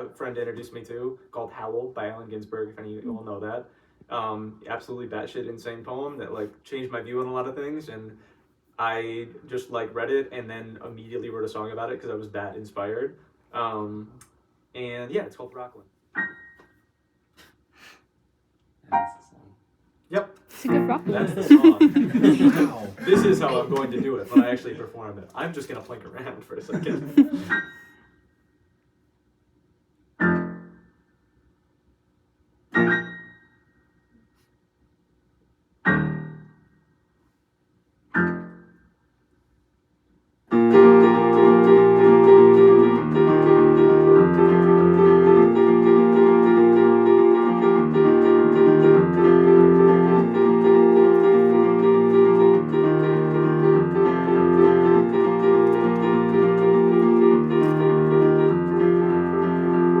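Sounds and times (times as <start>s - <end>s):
keyboard chords: 20.7s - 24.3s, 40.5s - 60.0s.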